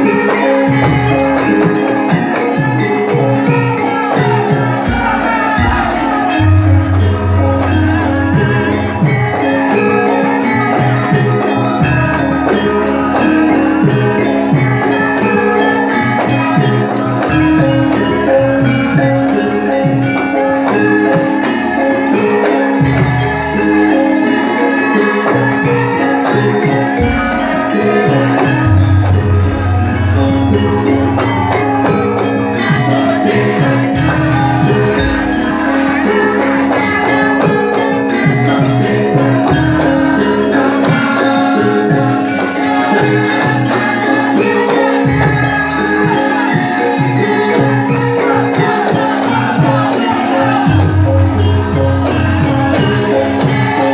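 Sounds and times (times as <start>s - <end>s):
jingling percussion: 0.0s - 53.9s
music with steady beat: 0.0s - 53.9s
sustained pitched notes: 0.0s - 53.9s.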